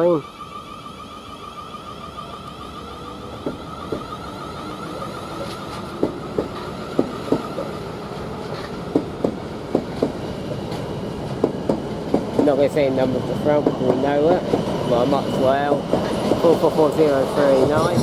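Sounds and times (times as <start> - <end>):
electric train running: 0.0 - 18.0.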